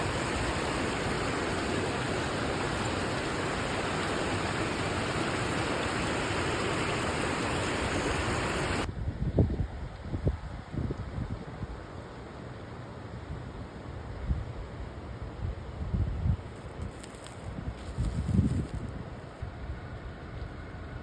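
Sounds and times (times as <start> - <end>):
fast-flowing water rushing: 0.0 - 8.9.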